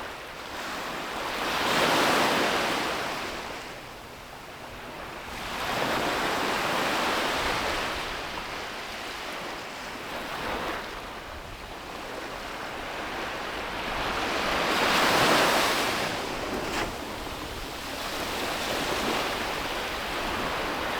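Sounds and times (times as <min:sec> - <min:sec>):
sea waves breaking on beach: 0:12.1 - 0:20.9.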